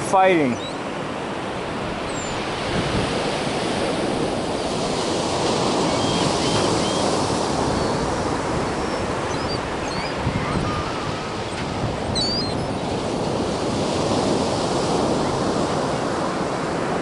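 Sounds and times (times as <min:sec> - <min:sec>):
ocean surf washing in: 0:00.0 - 0:17.0
wind on microphone: 0:01.5 - 0:17.0
faint gull calls: 0:08.7 - 0:12.8.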